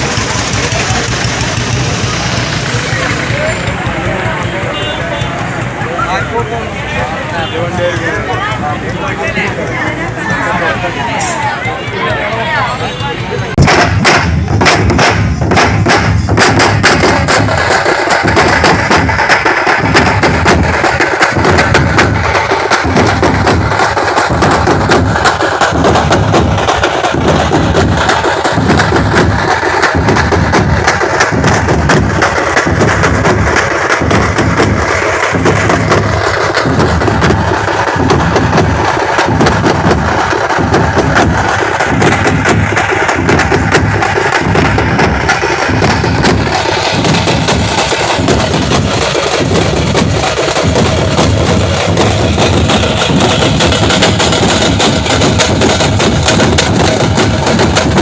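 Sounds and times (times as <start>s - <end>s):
deep drum beat: 0.0s - 58.0s
drum ensemble playing fast: 0.0s - 58.0s.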